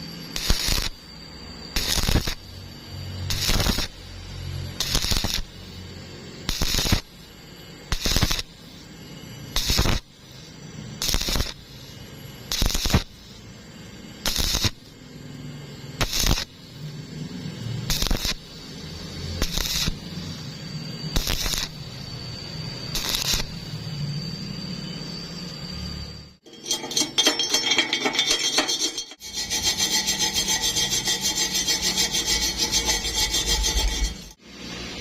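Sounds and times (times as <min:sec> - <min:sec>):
welding arc crackling: 0:00.3 - 0:01.0, 0:01.8 - 0:02.4, 0:03.2 - 0:04.0, 0:04.8 - 0:05.5, 0:06.5 - 0:07.1, 0:07.9 - 0:08.5, 0:09.6 - 0:10.1, 0:11.0 - 0:11.6, 0:12.5 - 0:13.1, 0:14.2 - 0:14.9, 0:16.0 - 0:16.6, 0:17.7 - 0:20.0, 0:21.1 - 0:21.8, 0:22.9 - 0:23.8.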